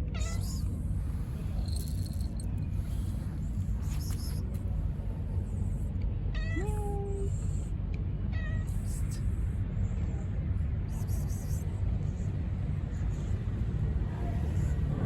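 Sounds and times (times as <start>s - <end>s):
steady low rumble: 0.0s - 15.0s
cat meowing: 0.1s - 0.7s, 6.4s - 7.3s, 8.3s - 8.9s.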